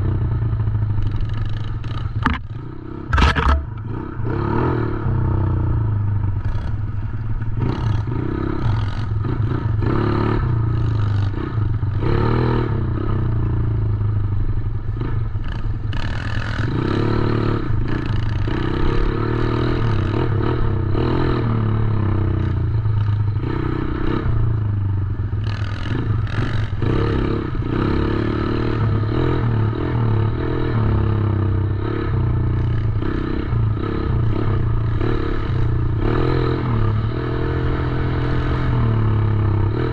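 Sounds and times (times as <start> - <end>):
dirt bike engine revving: 1.0 - 13.3, 25.4 - 39.9.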